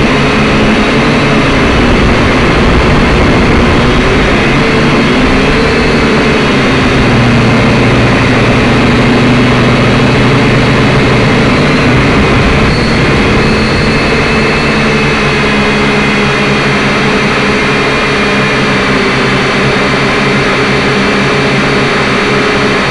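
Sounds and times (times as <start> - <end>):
drone motors and propellers whining: 0.0 - 22.9.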